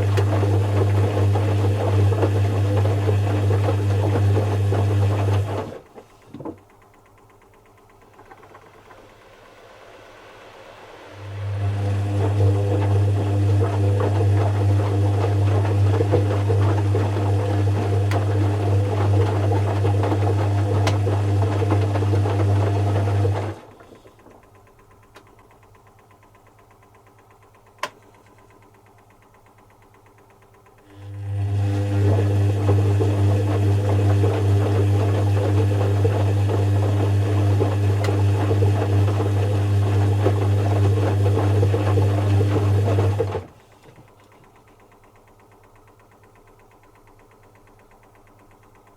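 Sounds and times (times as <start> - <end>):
washing machine motor humming: 0.0 - 48.9
click: 26.9 - 30.8, 43.8 - 48.0.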